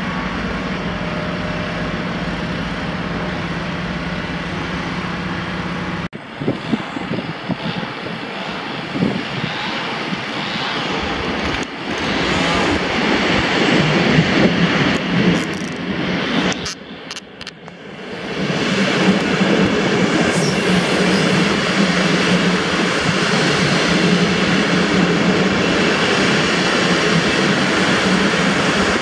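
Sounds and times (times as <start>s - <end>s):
electric train humming: 0.0s - 29.0s
train wheels rumbling and clattering: 0.0s - 29.0s.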